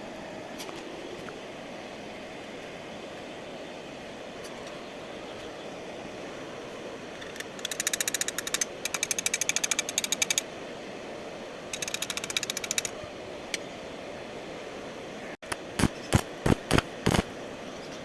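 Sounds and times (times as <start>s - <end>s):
steady background hum: 0.0s - 18.0s
rapid mechanical clicking: 7.2s - 10.5s, 11.7s - 12.9s, 15.4s - 17.3s.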